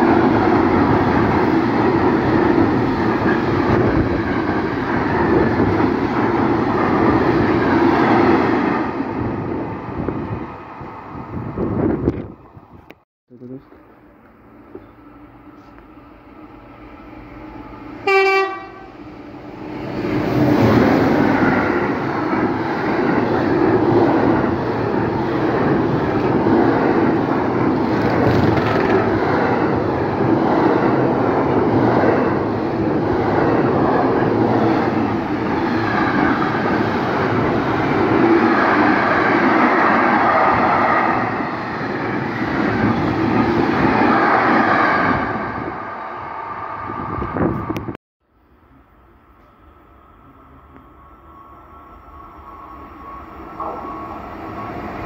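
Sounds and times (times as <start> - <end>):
freight train passing: 0.0 - 55.0
train horn blast: 18.0 - 19.0.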